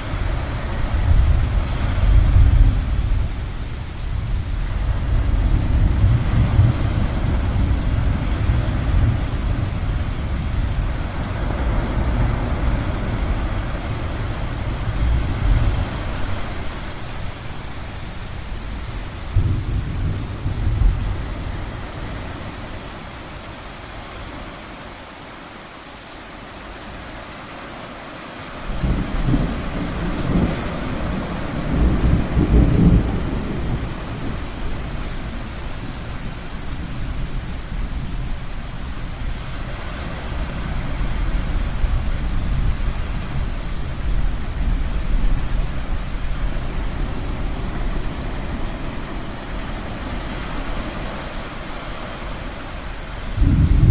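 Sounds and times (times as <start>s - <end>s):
ocean surf: 0.0s - 53.9s
rolling thunder: 4.1s - 22.6s, 28.7s - 35.8s, 53.0s - 53.9s.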